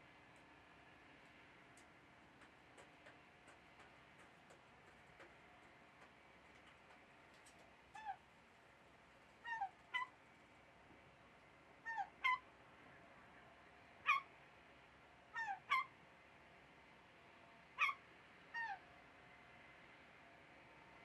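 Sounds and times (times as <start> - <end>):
bird calling: 9.4 - 10.2, 11.9 - 12.4, 14.1 - 14.3, 15.4 - 15.9, 17.8 - 18.0.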